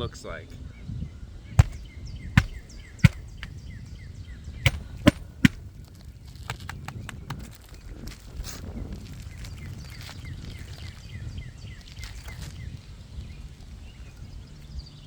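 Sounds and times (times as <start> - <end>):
hammer driving nails into shingles: 1.6 - 3.6, 4.7 - 5.6.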